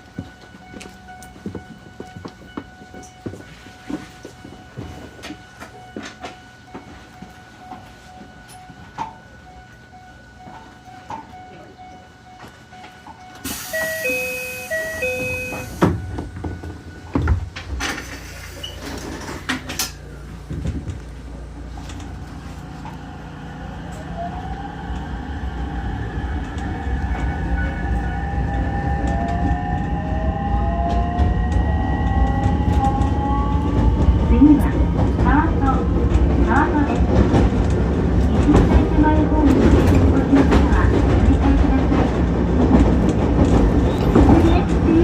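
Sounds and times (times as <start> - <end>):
train clunks: 0.0 - 25.2, 30.7 - 45.0
train rumble: 0.0 - 45.0
train motor whine: 13.2 - 19.3
two-tone chime: 13.3 - 15.9.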